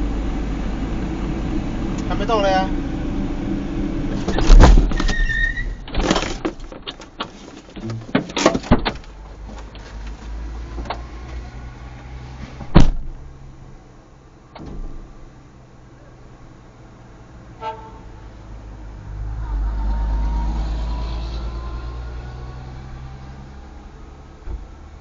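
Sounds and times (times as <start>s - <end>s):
loud sharp thump: 4.2s - 5.1s, 12.6s - 13.2s
clicks and knocks of handling: 5.9s - 11.0s.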